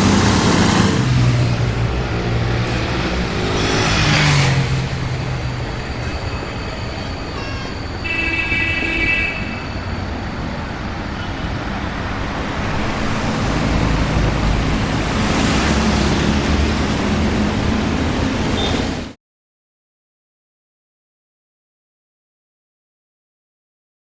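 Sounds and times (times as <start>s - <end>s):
car driving past: 12.0s - 19.0s.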